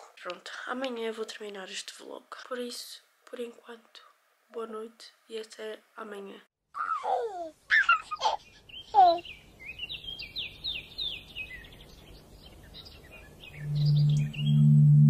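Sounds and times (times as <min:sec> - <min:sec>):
small bird chirping: 0:07.7 - 0:14.7
loud steady low drone: 0:13.6 - 0:15.0.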